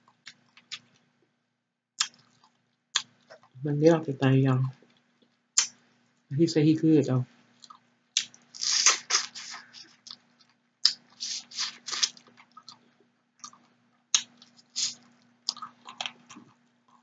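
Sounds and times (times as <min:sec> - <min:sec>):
chewing and mouth smacking: 0:07.6 - 0:17.0.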